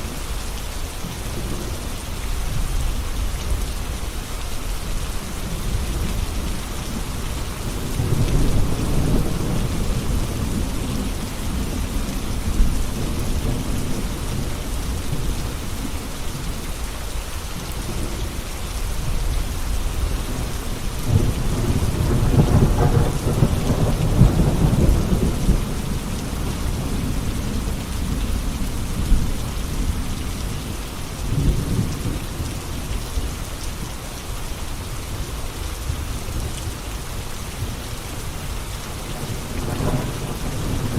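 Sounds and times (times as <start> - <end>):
steady rain falling: 0.0 - 40.9
rolling thunder: 5.4 - 15.4, 19.2 - 30.2, 39.1 - 40.9.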